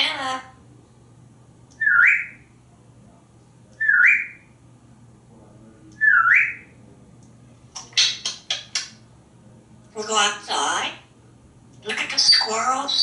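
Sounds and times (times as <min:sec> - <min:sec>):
parrot whistling: 0:01.8 - 0:02.4, 0:03.8 - 0:04.4, 0:06.0 - 0:06.7.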